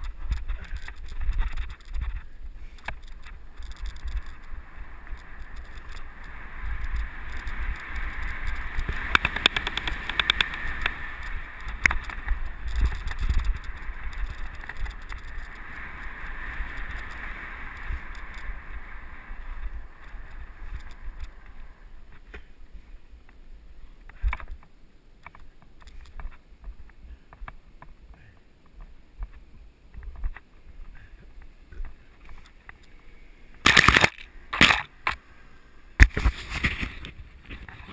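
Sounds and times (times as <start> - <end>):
wind rushing over microphone: 0.0 - 22.3
tyres on dirt trail rattling: 0.0 - 22.6, 33.6 - 35.2.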